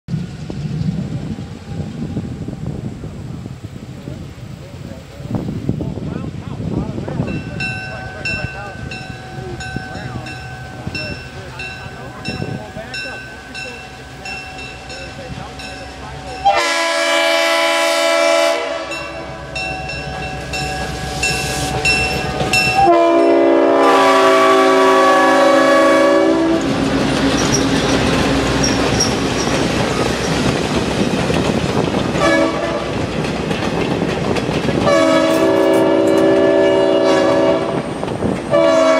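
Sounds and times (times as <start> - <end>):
railroad cars clattering past: 0.1 - 38.9
locomotive horn blasts: 16.4 - 19.6, 20.8 - 26.8, 32.2 - 33.0, 34.8 - 37.8, 38.5 - 38.9.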